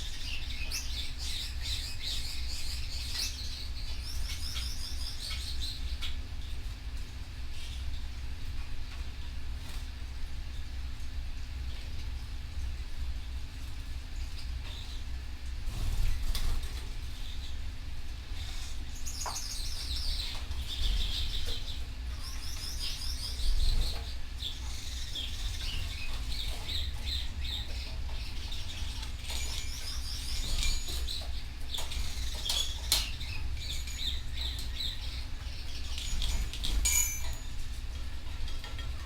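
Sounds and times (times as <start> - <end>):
canary singing trills: 0.0 - 6.4, 18.4 - 37.6.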